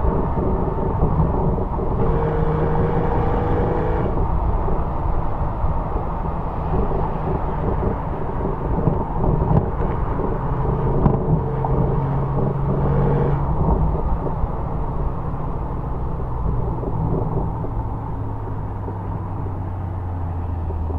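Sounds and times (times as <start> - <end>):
car exhaust at low revs: 0.0 - 20.9
road rumble: 0.0 - 20.9
wind: 0.0 - 20.9.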